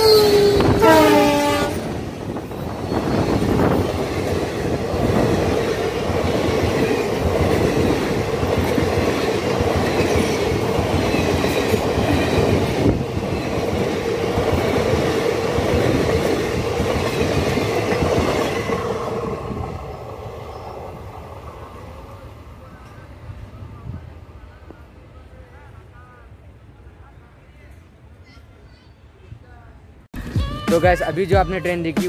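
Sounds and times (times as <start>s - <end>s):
train wheels clattering on rails: 0.0s - 19.9s.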